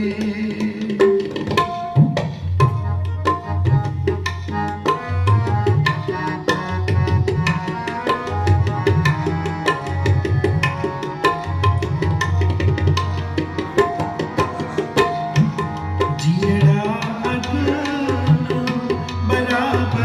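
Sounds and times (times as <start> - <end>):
tabla playing fast pattern: 0.0 - 20.0
harmonium held notes: 2.7 - 20.0.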